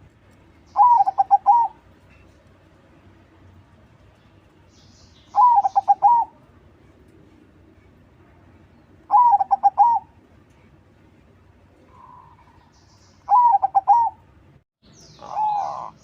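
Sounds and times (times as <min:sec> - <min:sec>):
faint high bird chirps: 0:00.6 - 0:02.4, 0:04.8 - 0:06.3, 0:11.9 - 0:14.2, 0:14.8 - 0:16.0
dove cooing: 0:00.8 - 0:01.8, 0:05.4 - 0:06.4, 0:09.1 - 0:10.1, 0:13.3 - 0:14.2, 0:15.2 - 0:16.0.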